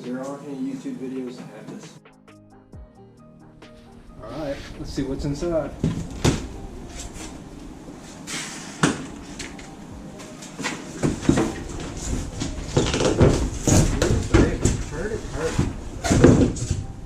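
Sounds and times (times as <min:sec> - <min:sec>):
heavy thumps: 0:03.8 - 0:08.2, 0:08.8 - 0:17.0.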